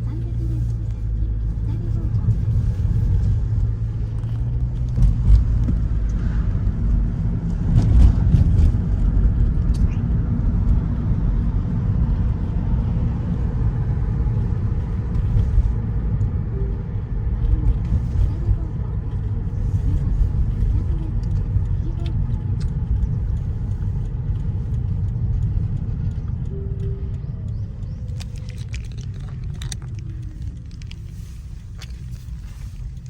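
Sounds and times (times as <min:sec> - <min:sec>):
road vehicle rumble: 0:00.0 - 0:33.0
faint ticks: 0:19.1 - 0:33.0.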